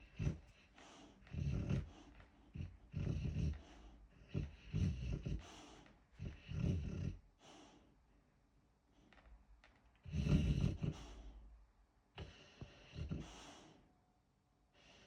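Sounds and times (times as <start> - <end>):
dog snoring: 0.0 - 7.8, 10.0 - 11.4, 12.2 - 13.7
dog breathing softly: 0.0 - 8.3, 10.0 - 11.6, 12.2 - 13.9, 14.7 - 15.0.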